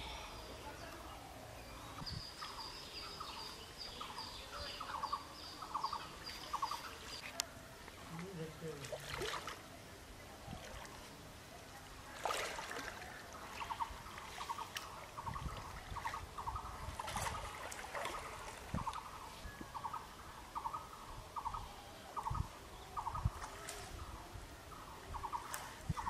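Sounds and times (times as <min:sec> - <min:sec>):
water sloshing and splashing: 0:08.0 - 0:09.7, 0:10.4 - 0:19.2.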